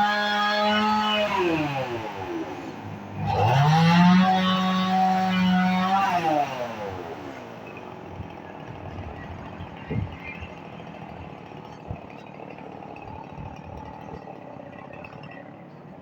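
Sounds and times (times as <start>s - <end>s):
chainsaw engine: 0.0s - 16.0s.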